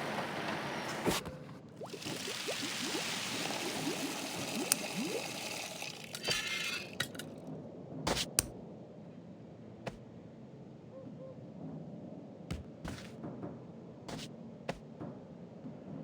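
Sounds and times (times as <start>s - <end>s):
liquid pouring into glass: 1.8s - 7.3s.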